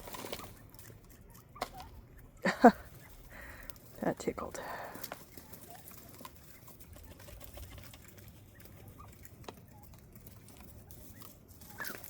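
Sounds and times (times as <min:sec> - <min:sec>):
quail calling softly: 0:00.0 - 0:12.0.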